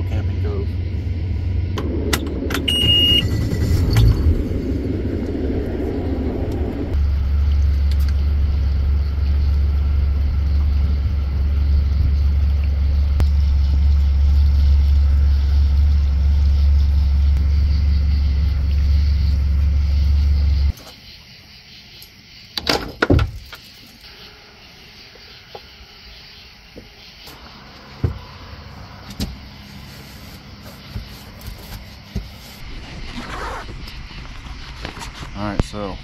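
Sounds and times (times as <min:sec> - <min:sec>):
outboard motor running: 0:00.0 - 0:20.7
short high beep: 0:02.6 - 0:03.4.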